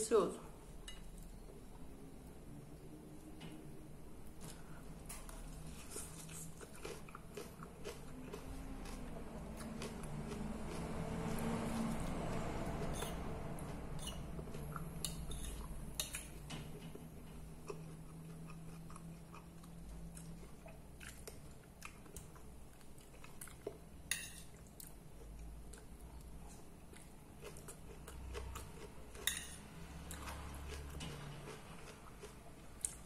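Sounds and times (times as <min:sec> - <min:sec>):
low steady hum: 0:00.0 - 0:33.0
close-up chewing: 0:05.3 - 0:16.3, 0:17.6 - 0:23.8
cutlery clinking on a plate: 0:29.2 - 0:29.6.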